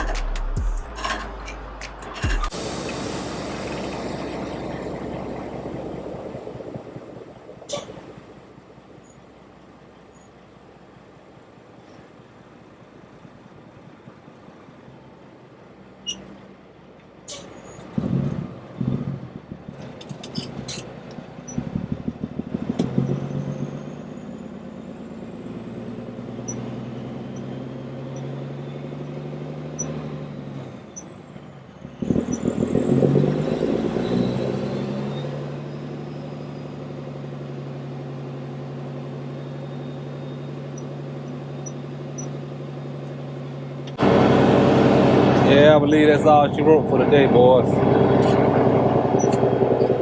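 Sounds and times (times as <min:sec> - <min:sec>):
clattering: 0:00.0 - 0:02.6
diesel truck engine pulling: 0:00.0 - 0:50.0.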